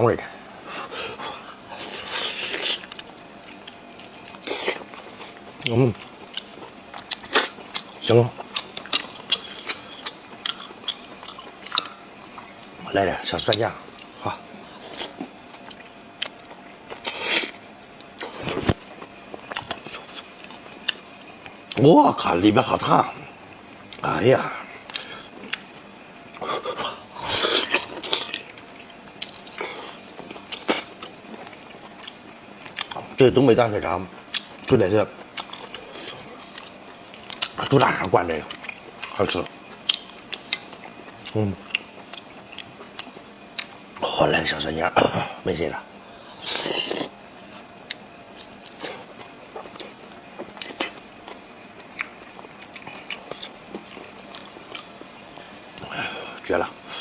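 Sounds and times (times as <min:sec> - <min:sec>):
person chewing and biting: 0:01.7 - 0:12.5, 0:14.8 - 0:21.0, 0:26.4 - 0:33.0, 0:35.3 - 0:37.8, 0:38.5 - 0:43.9, 0:46.3 - 0:55.1.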